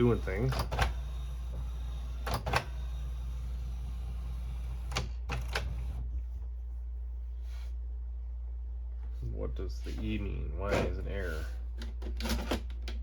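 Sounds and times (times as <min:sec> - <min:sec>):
printer mechanism clicking: 0:00.0 - 0:01.0, 0:04.9 - 0:05.9
low steady hum: 0:00.0 - 0:13.0.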